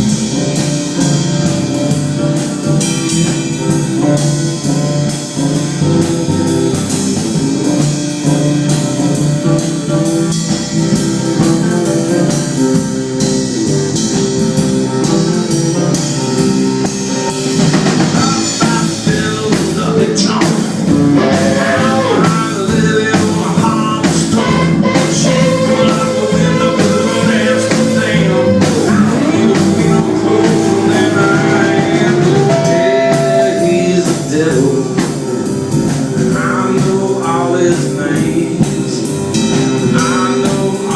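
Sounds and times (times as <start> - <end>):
lead melody with bending notes: 0.0 - 40.9
live band playing: 0.0 - 40.9.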